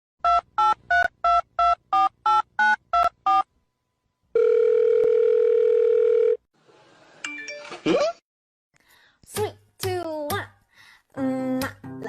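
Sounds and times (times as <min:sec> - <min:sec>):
steady telephone line tone: 0:04.3 - 0:06.5.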